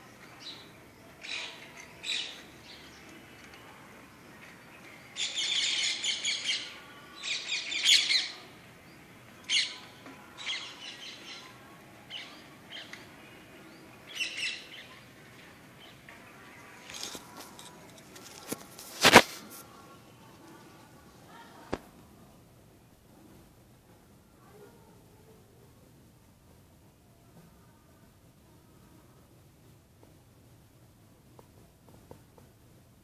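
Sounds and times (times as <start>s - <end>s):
small birds chirping: 0.0s - 17.6s.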